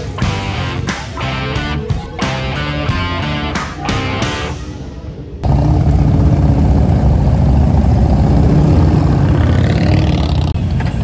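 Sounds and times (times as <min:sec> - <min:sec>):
loud motorcycle engines: 0:05.1 - 0:11.0.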